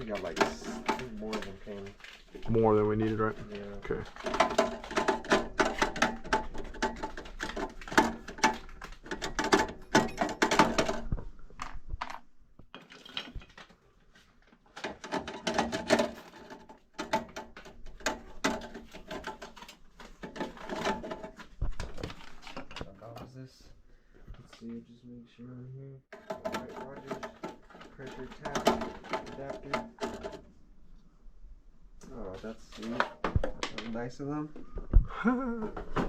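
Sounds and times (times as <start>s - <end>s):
small metal parts clinking: 3.3s - 11.0s.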